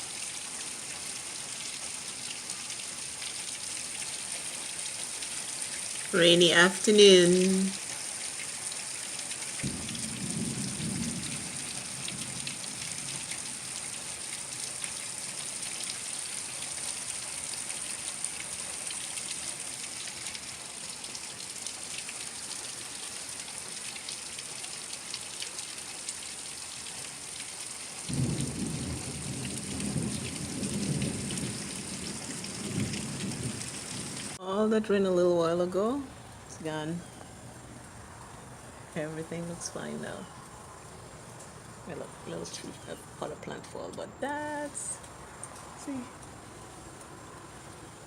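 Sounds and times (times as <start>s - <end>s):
steady rain: 0.0s - 48.0s
thunder rumbling: 9.6s - 12.9s, 28.1s - 34.4s.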